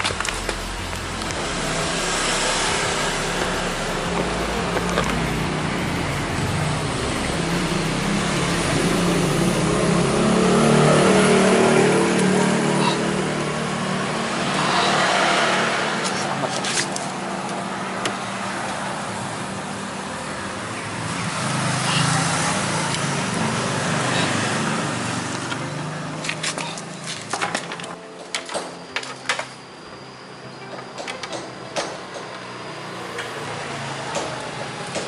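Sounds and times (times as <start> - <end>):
vehicle engine passing: 0.0 - 27.3
traffic noise: 0.0 - 35.0.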